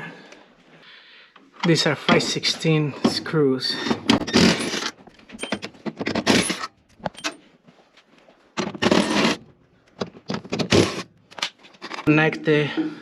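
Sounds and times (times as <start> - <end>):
metal screws scraping and clinking: 11.4 - 12.1.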